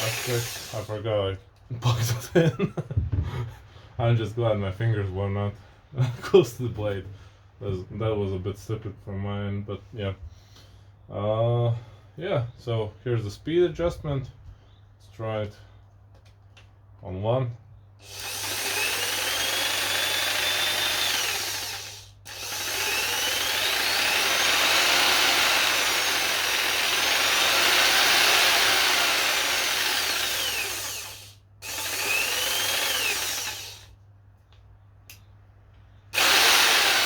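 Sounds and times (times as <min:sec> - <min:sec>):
electric jigsaw motor running: 0:00.0 - 0:00.9, 0:18.0 - 0:33.9, 0:36.2 - 0:37.0.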